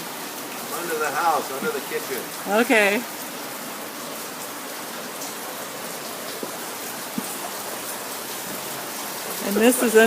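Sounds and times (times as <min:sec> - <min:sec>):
heavy rain hissing: 0:00.0 - 0:10.0
storm water running: 0:00.0 - 0:10.0
faint dripping taps: 0:01.4 - 0:01.9, 0:05.0 - 0:09.8.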